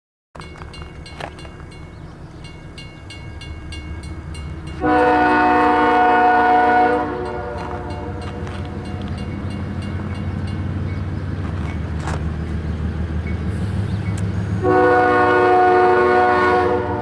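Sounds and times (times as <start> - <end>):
train rumbling: 0.4 - 17.0
locomotive horn blast: 4.7 - 8.9, 14.5 - 17.0.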